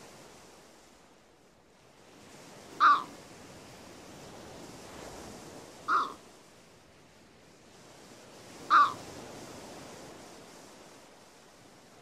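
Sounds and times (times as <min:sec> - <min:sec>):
bird calls: 0:02.8 - 0:03.1, 0:05.9 - 0:06.2, 0:08.7 - 0:09.0.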